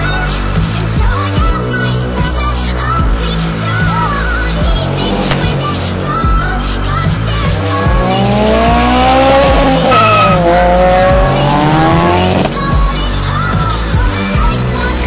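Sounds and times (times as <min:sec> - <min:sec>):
background music with steady beat: 0:00.0 - 0:15.0
car engine revving: 0:03.8 - 0:13.8.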